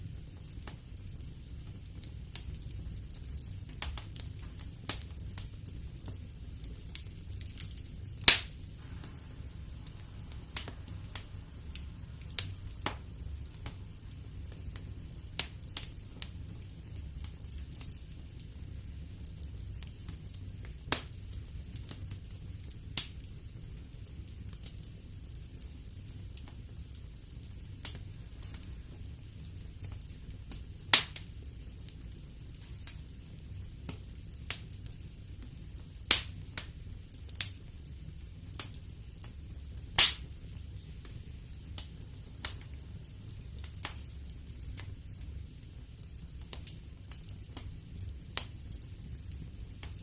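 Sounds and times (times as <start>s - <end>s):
sharp pops and snaps of fire: 0.0s - 50.0s
wood fire crackling: 0.0s - 50.0s.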